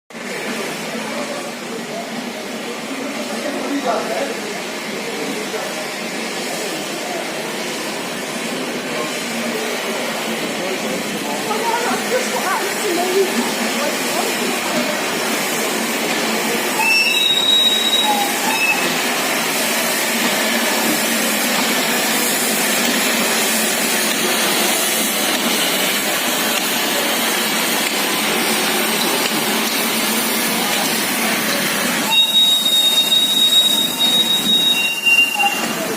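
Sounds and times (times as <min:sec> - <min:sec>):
train running on rails: 0:00.1 - 0:35.9
high-pitched wheel squeals: 0:16.8 - 0:18.9, 0:32.1 - 0:35.8.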